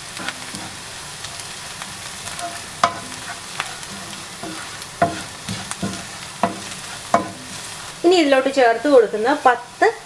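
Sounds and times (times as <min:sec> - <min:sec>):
food sizzling in a pan: 0:00.0 - 0:10.0
spoon clinking against a pan: 0:02.3 - 0:07.7.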